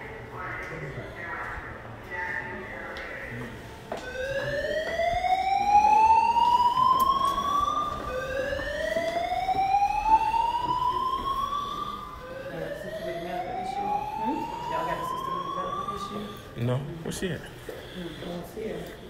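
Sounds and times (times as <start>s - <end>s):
slow-whoop alarm: 3.9s - 16.6s.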